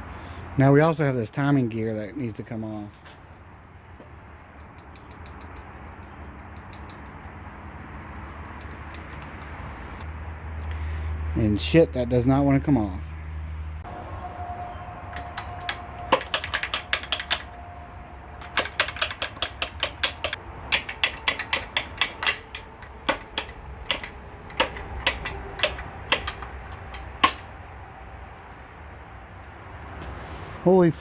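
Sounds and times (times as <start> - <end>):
metal hand tools knocking: 4.6 - 7.0, 15.1 - 17.6, 18.4 - 27.6.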